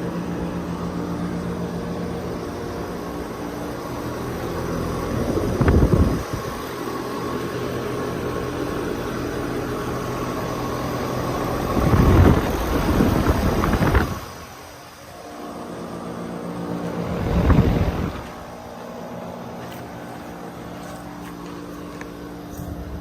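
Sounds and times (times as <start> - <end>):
air conditioning units humming: 0.0 - 23.0.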